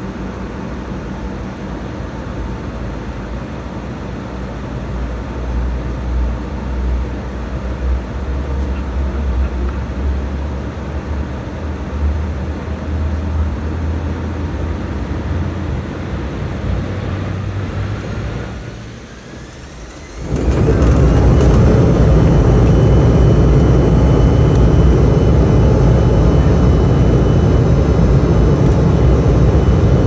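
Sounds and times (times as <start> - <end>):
jet engine cabin rumble: 7.3 - 30.0
faint steady whine: 13.5 - 30.0.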